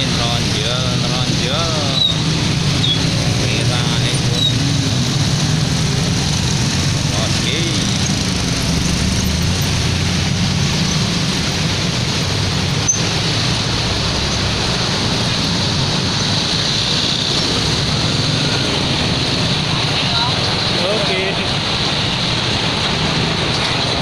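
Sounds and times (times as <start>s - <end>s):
roadside traffic noise: 0.0s - 24.0s.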